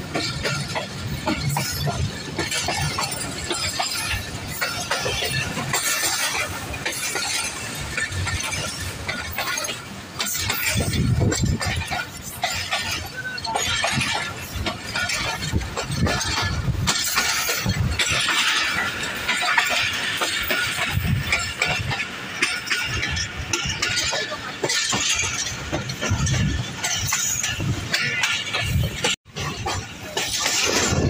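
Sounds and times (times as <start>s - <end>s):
train wheels clattering on track: 0.0s - 31.0s.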